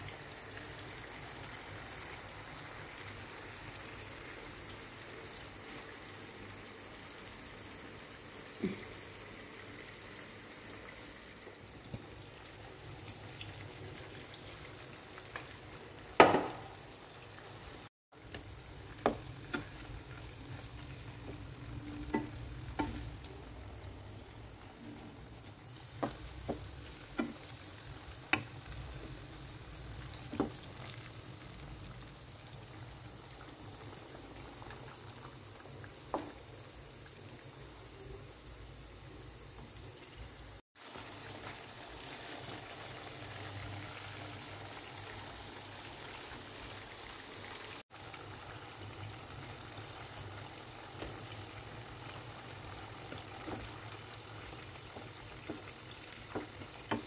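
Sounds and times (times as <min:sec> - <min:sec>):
meat sizzling in hot oil: 0:00.0 - 0:57.0
stew simmering and stirred: 0:00.1 - 0:57.0
wooden spatula knocking pan: 0:16.2 - 0:16.8, 0:19.0 - 0:19.8, 0:21.2 - 0:23.1, 0:25.9 - 0:27.5, 0:55.0 - 0:57.0.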